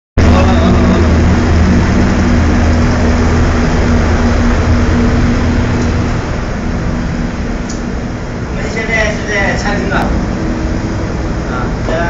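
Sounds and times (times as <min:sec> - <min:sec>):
boat engine humming: 0:00.2 - 0:12.0.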